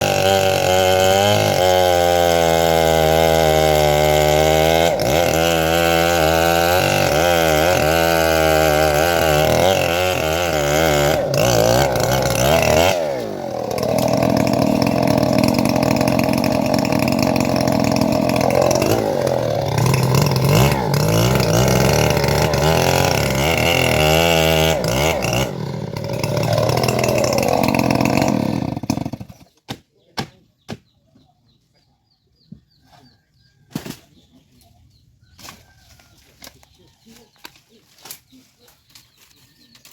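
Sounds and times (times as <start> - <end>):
engine-driven wood saw: 0.0 - 29.6.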